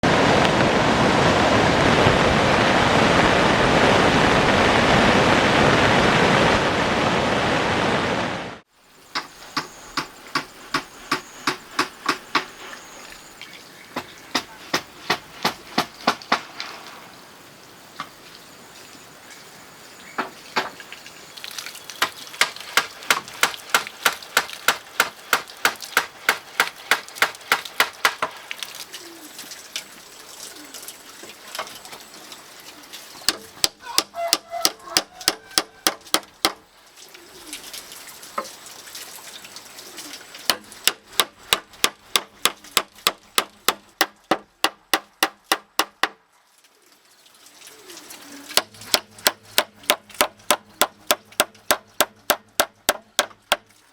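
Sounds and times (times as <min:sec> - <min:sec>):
hand tool striking hard material: 0:22.0 - 0:28.4, 0:33.3 - 0:36.6, 0:40.5 - 0:46.2, 0:48.6 - 0:53.7.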